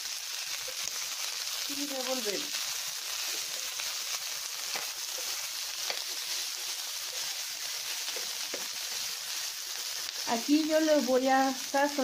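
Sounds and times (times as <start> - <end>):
food sizzling in a pan: 0.0 - 12.0
spatula scraping and tapping: 8.0 - 9.1.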